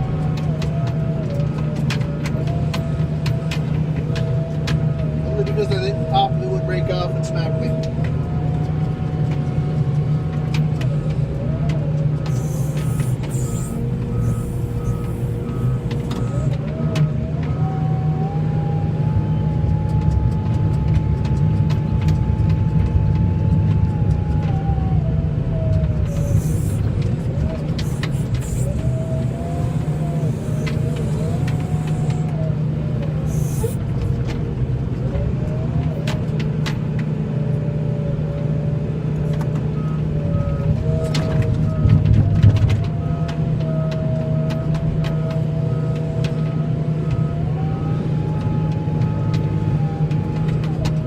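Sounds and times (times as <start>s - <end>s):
heavy vehicle engine running: 0.0s - 51.0s
rising whine: 0.0s - 51.0s
backup alarm beeping: 12.3s - 16.6s.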